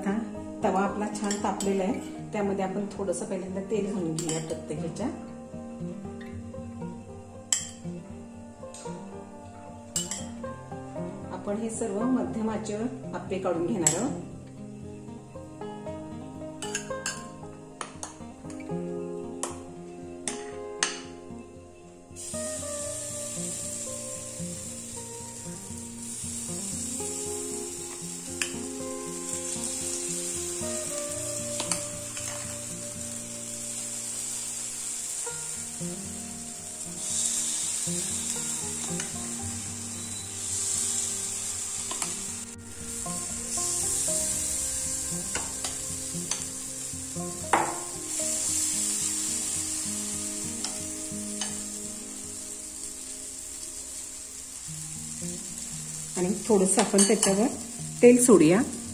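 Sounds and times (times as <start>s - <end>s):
batter sizzling in oil: 10.0s - 10.5s, 22.2s - 58.9s.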